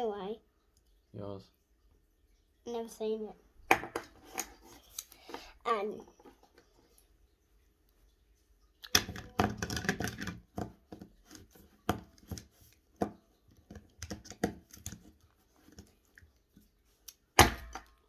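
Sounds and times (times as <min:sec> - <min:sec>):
toys clattering and rustling: 0:03.7 - 0:07.0, 0:08.9 - 0:16.7.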